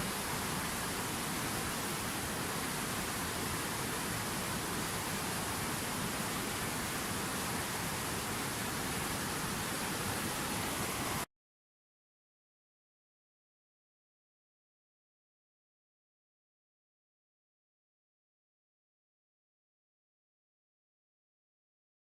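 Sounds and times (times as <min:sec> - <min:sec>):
steady rushing noise: 0:00.0 - 0:11.2.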